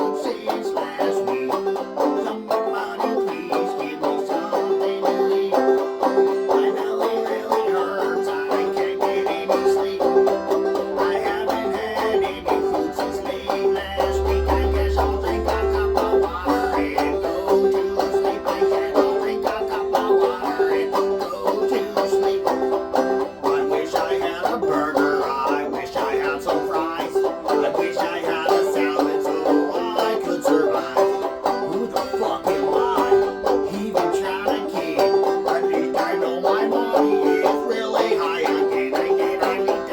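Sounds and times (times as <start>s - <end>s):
band playing plucked strings: 0.0s - 39.9s
steady held note: 10.2s - 21.2s
brief low boom: 13.6s - 18.3s.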